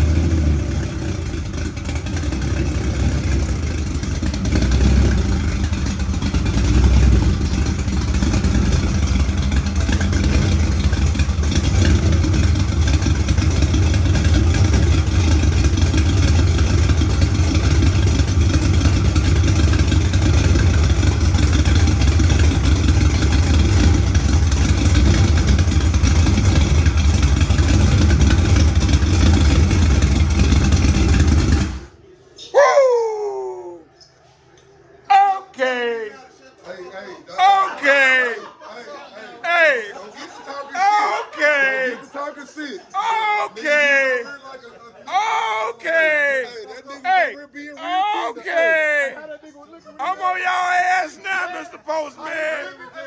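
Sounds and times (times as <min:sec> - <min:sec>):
engine running: 0:00.0 - 0:32.1.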